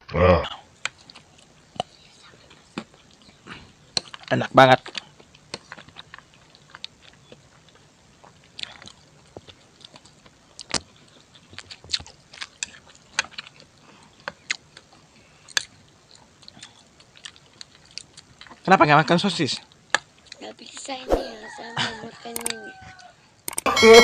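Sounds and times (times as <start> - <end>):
person chewing food: 0.8 - 18.6.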